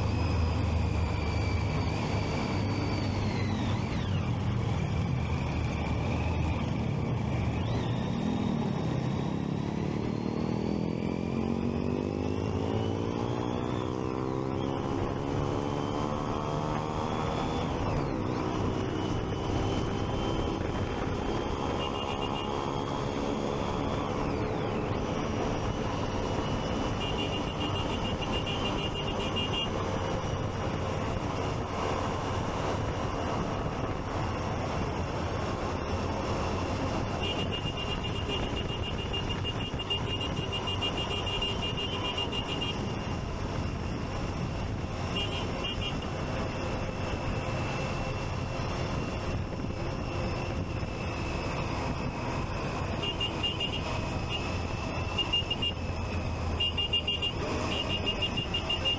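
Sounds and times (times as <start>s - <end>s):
traffic: 0.0s - 58.9s
wind: 0.0s - 58.9s
motorcycle engine running: 18.3s - 58.9s.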